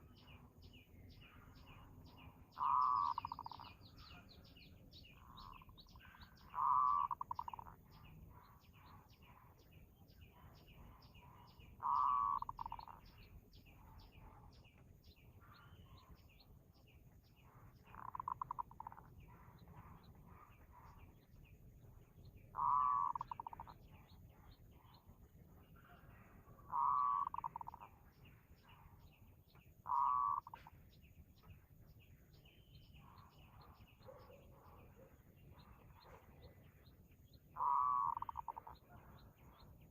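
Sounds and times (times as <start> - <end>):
small birds chirping: 0.0 - 39.9
dove cooing: 2.6 - 3.8, 5.4 - 9.1, 10.4 - 13.1, 17.8 - 21.1, 22.5 - 23.9, 26.0 - 27.8, 29.8 - 30.6, 37.6 - 39.2.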